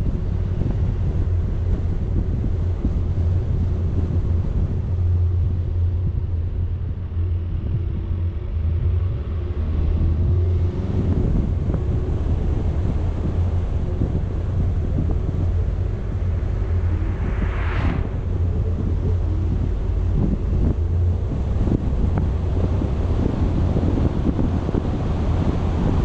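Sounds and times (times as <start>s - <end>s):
vehicle rumble: 0.0s - 26.0s
wind buffeting microphone: 0.0s - 26.0s
faint engine note: 2.2s - 26.0s.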